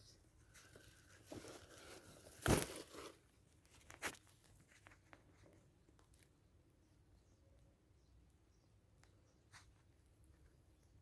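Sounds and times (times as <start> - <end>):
rustling and crunching: 0.3 - 6.4.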